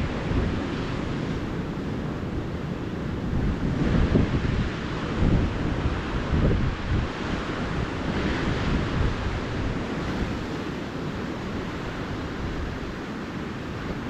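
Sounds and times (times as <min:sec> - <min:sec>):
ocean surf washing on beach: 0:00.0 - 0:14.0
wind buffeting microphone: 0:00.0 - 0:14.0.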